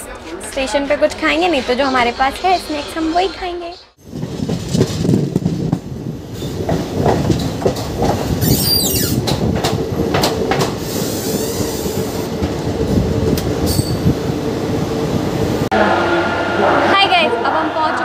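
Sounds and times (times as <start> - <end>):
train wheels clicking over rail joints: 4.1 - 14.1
high squeal falling in pitch: 8.4 - 9.2.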